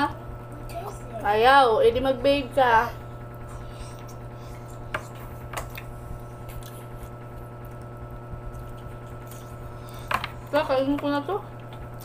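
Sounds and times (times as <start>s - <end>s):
steady low hum: 0.0s - 12.0s
person chewing soft food: 3.3s - 10.5s, 11.6s - 12.0s.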